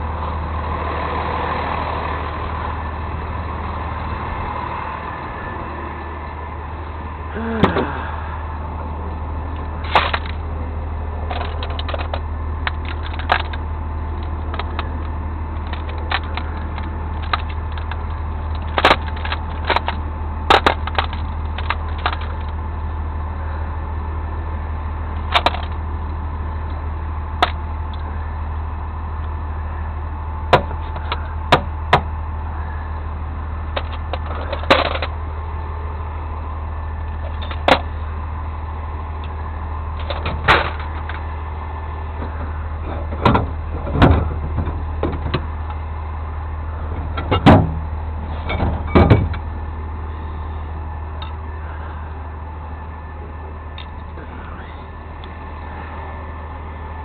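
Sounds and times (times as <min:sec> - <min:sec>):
vehicle engine running: 0:00.0 - 0:57.0
sharp knocks and clanks: 0:42.9 - 0:45.5, 0:47.2 - 0:47.8, 0:48.4 - 0:49.4.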